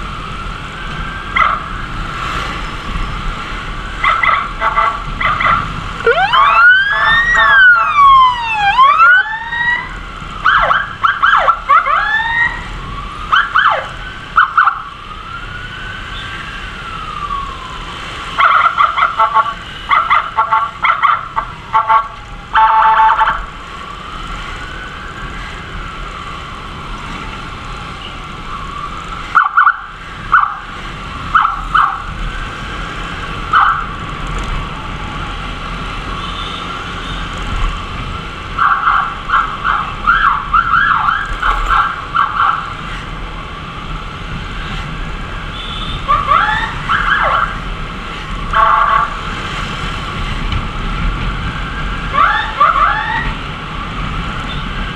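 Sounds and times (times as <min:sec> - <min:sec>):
ambulance siren wailing: 0:00.0 - 0:54.9
low rumble of wind and engine: 0:00.0 - 0:54.9
siren short loud blasts: 0:04.0 - 0:09.9.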